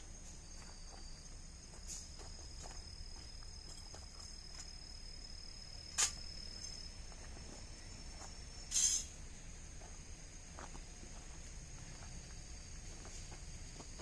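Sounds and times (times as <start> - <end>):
insects trilling: 0.0 - 14.0
sharp click: 5.9 - 6.2.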